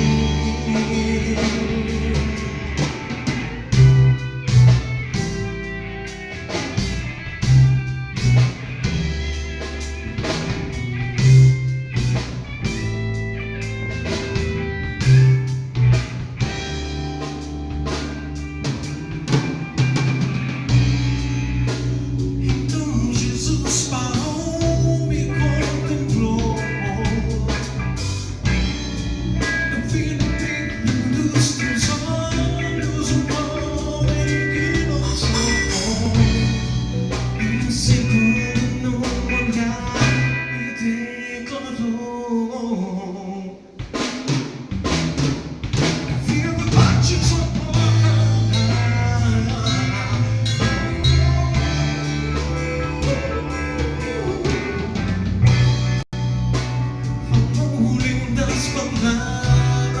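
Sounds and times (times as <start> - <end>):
band playing drums bass guitar: 0.0 - 40.9, 43.8 - 60.0.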